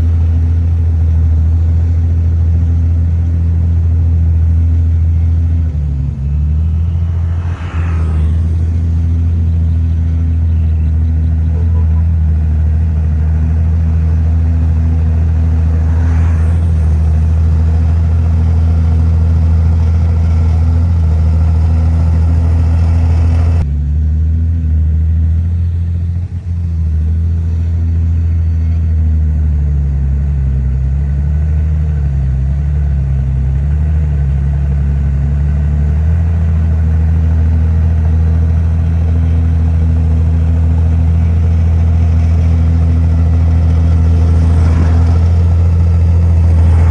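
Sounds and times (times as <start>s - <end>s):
diesel machinery engine drone: 0.0s - 46.9s.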